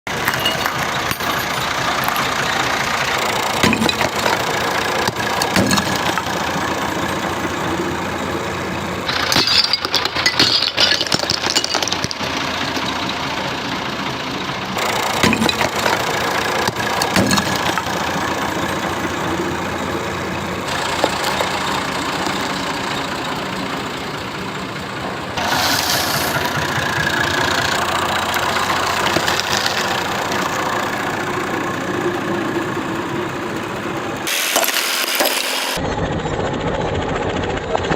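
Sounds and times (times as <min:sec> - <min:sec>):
tractor engine running: 0:00.0 - 0:37.9
rough hissy noise: 0:25.4 - 0:27.0, 0:34.2 - 0:35.8.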